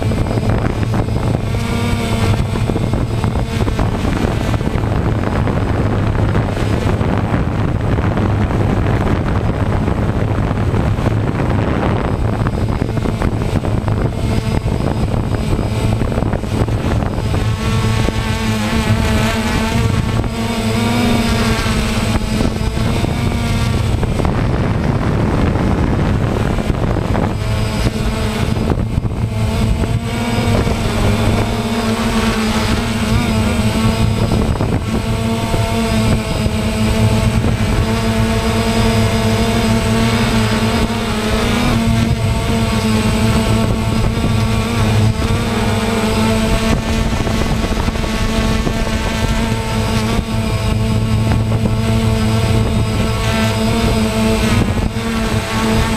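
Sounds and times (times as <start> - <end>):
drone propellers buzzing: 0.0 - 55.9.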